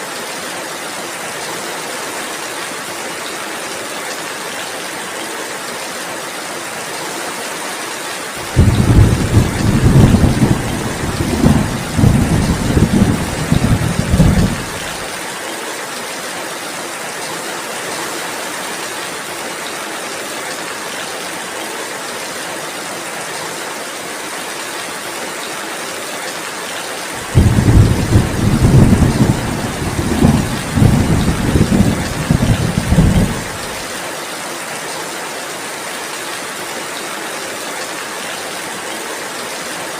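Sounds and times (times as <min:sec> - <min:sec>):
steady rainfall: 0:00.0 - 0:39.9
thunder rumbling: 0:08.4 - 0:15.1, 0:27.2 - 0:33.8.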